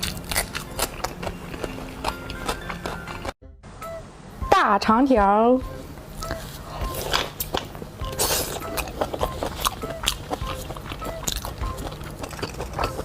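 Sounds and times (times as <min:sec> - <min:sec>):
chewing and biting meat: 0:00.0 - 0:03.4, 0:08.1 - 0:13.0
light background music: 0:00.0 - 0:13.0.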